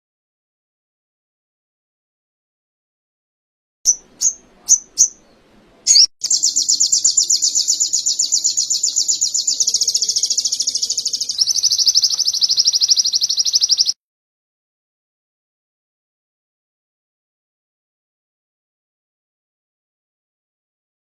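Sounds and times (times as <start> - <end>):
bird chirps and trill: 3.9 - 14.0.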